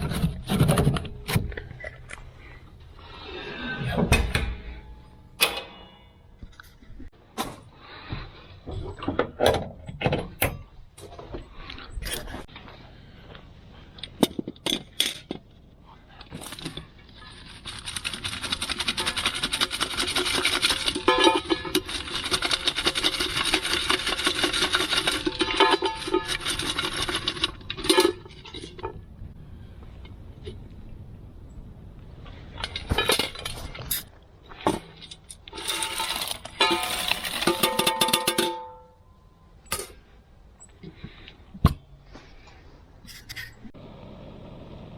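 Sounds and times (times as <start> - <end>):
rapid scraping: 16.8 - 28.4
objects being handled: 32.3 - 38.9.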